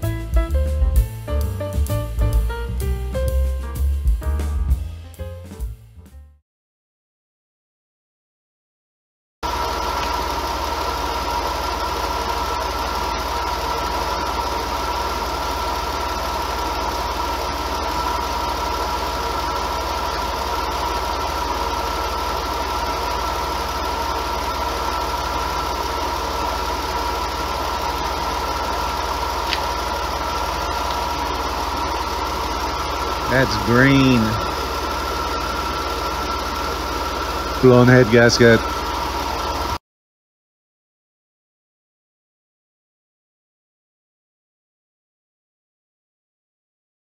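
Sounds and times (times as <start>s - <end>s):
car engine idling: 0.0s - 5.8s, 9.4s - 39.8s
high whine: 9.4s - 39.8s.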